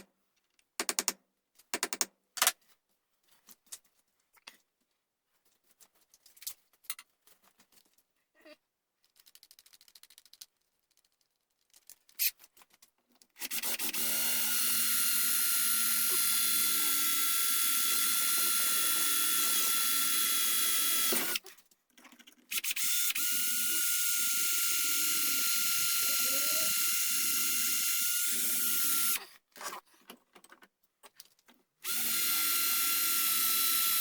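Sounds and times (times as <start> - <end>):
small electric drill running: 13.4 - 21.4, 22.5 - 29.2, 31.8 - 34.0.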